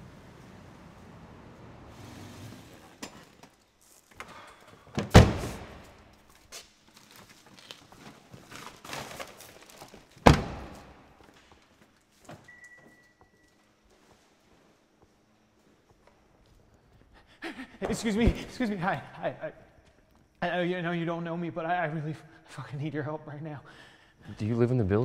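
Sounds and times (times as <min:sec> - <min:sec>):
car door slamming: 0:05.0 - 0:05.8.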